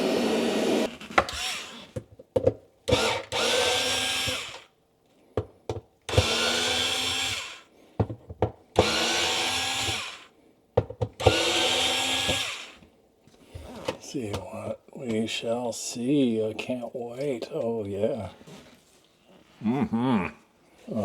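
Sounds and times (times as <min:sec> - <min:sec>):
vacuum cleaner motor whine: 0:00.0 - 0:01.7, 0:03.0 - 0:04.6, 0:06.1 - 0:07.6, 0:08.8 - 0:10.2, 0:11.2 - 0:12.8.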